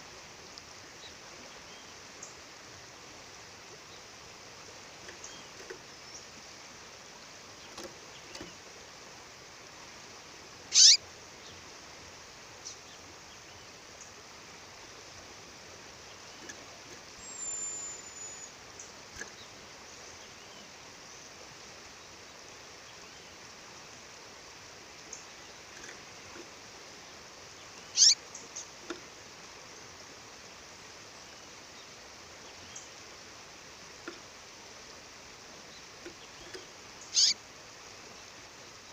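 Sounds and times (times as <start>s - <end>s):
bird calls sweeping down: 10.7s - 11.0s, 27.9s - 28.2s, 37.1s - 37.4s
faint bird chirps: 10.7s - 11.6s, 16.0s - 21.3s, 27.1s - 28.8s, 35.6s - 37.4s.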